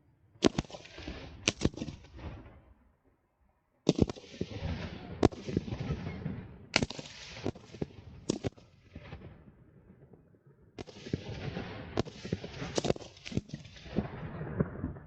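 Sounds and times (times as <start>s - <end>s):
fireworks bangs: 3.9s - 10.2s, 10.8s - 15.0s.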